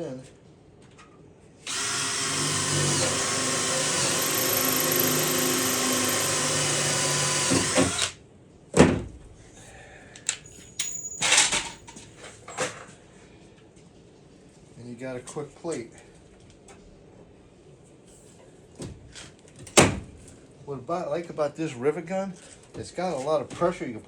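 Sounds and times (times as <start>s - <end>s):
electric drill boring through steel: 1.7s - 8.2s.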